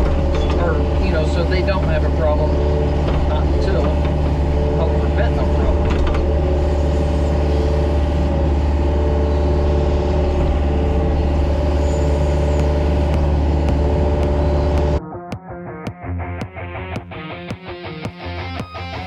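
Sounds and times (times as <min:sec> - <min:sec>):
diesel engine running steadily: 0:00.0 - 0:15.0.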